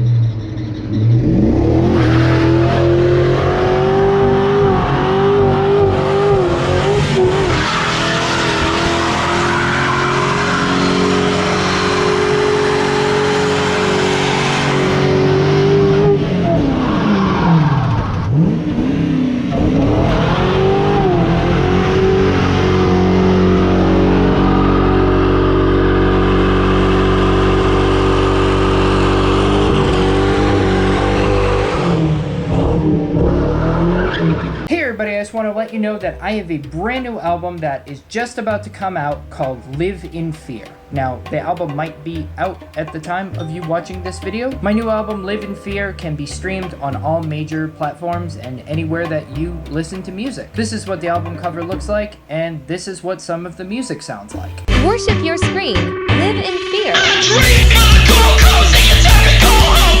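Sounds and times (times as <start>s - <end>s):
engine revving high: 0.0s - 34.7s, 54.7s - 60.0s
tire squealing: 0.0s - 34.7s.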